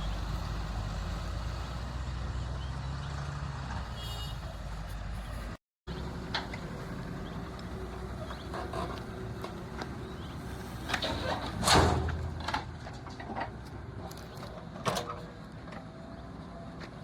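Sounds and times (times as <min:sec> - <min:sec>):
diesel engine running: 0:00.0 - 0:14.4
loud bucket crash: 0:11.3 - 0:13.0.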